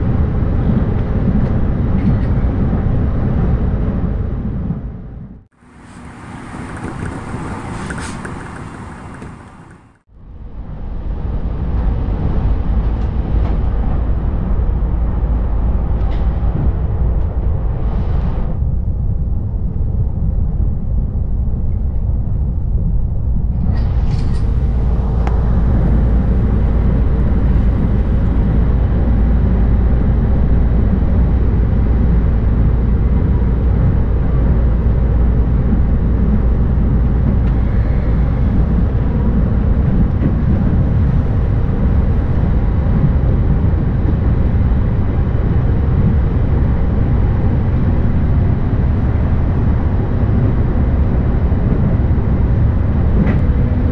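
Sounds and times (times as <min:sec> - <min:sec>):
train wheels rumbling on track: 0:00.0 - 0:53.9.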